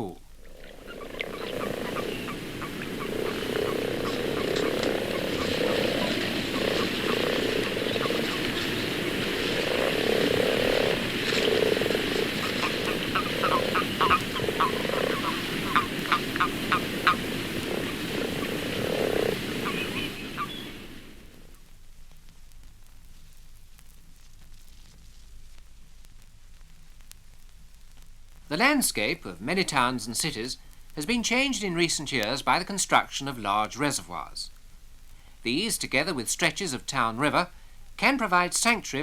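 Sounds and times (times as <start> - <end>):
toads piping high notes: 0.0 - 20.8
frogs croaking: 0.0 - 21.6.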